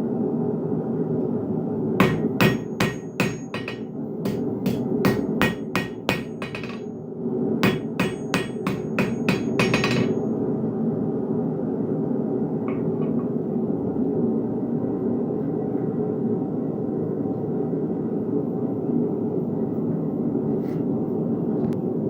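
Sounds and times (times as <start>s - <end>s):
hammer striking steel on anvil: 2.0s - 6.9s, 7.6s - 10.4s.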